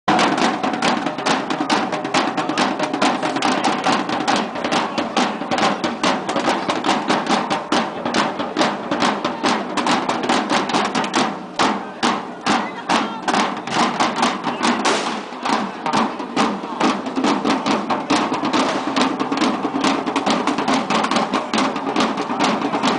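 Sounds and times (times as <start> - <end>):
drum band playing fast beat: 0.1 - 22.9.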